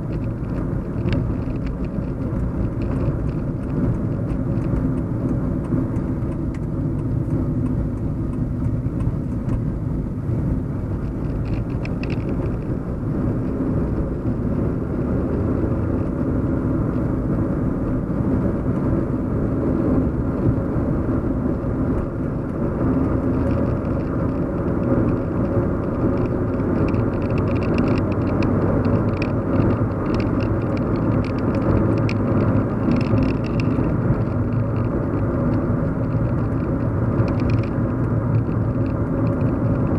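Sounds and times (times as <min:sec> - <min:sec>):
car cabin road and engine hum: 0:00.0 - 0:39.9
faint light ticks: 0:00.1 - 0:09.6.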